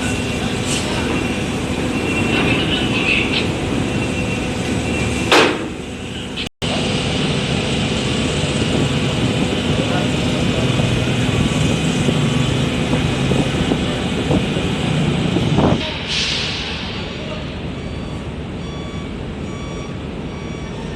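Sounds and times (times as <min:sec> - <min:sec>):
loud machinery drone: 0:00.0 - 0:20.9.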